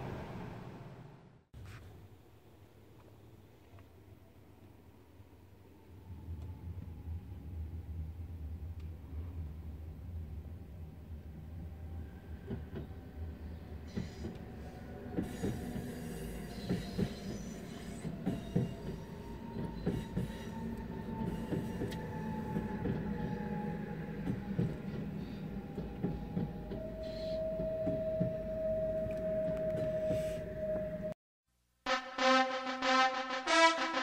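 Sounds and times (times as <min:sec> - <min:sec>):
train rumble: 0:04.6 - 0:31.2.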